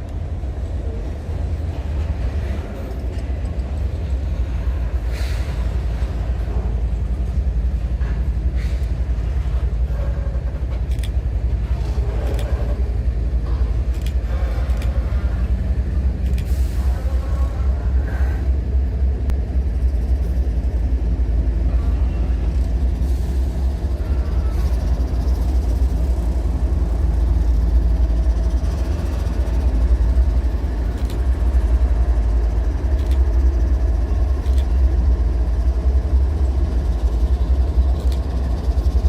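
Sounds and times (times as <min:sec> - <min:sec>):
diesel locomotive rumbling: 0:00.0 - 0:39.0
faint clicks and squeals: 0:08.0 - 0:15.5, 0:21.7 - 0:31.9, 0:36.3 - 0:39.0.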